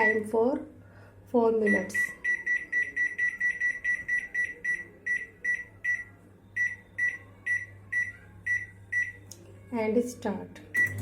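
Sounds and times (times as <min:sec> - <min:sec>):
microwave control panel beeping: 0:01.6 - 0:09.2, 0:10.7 - 0:11.0.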